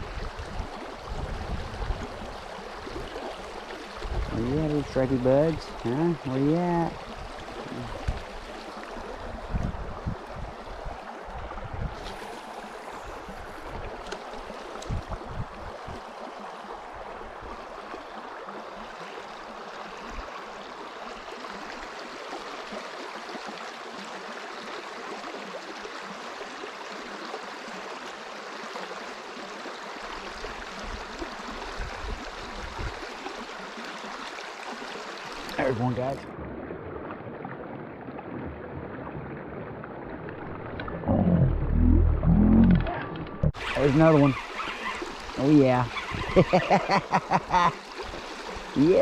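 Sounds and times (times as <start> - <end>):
river water flowing: 0.0 - 49.0
low thumps: 40.8 - 43.6.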